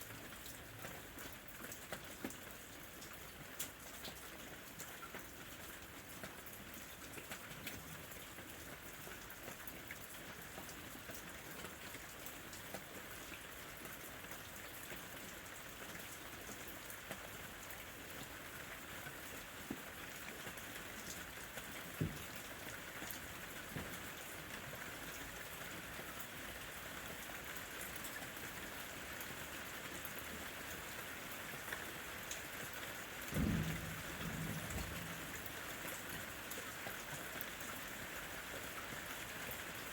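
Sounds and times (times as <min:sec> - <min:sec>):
rain pattering on foliage: 0:00.0 - 0:39.9
heavier raindrops: 0:00.1 - 0:27.8, 0:30.4 - 0:39.9
thunder rumble: 0:33.3 - 0:35.8.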